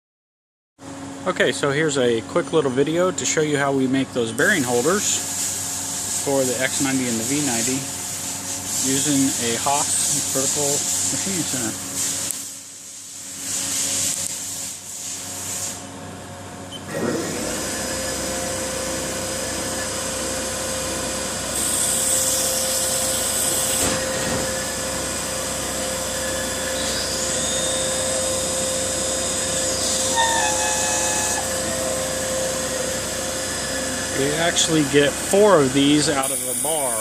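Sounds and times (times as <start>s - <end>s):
machining center running: 0.8s - 12.0s, 15.8s - 37.0s
cutting and coolant spray hiss: 4.4s - 15.8s, 21.0s - 37.0s.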